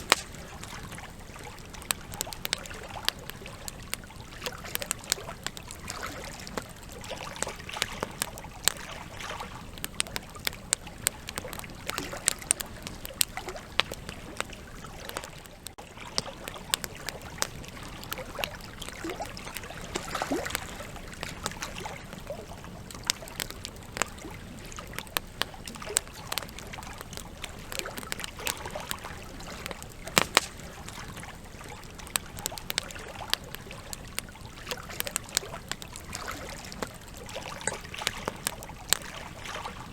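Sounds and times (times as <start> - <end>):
fire hissing: 0.0 - 5.8, 21.0 - 36.1
campfire crackling and popping: 0.0 - 39.9.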